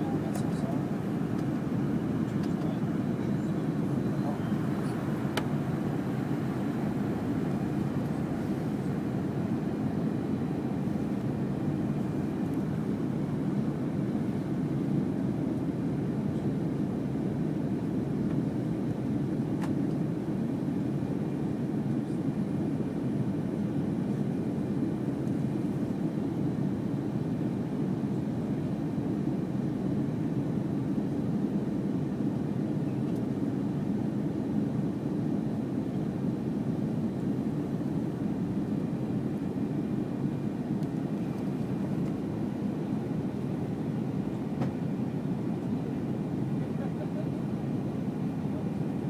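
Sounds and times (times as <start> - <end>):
airliner cabin noise: 0.0 - 49.0
faint click: 0.3 - 0.7, 33.1 - 33.3.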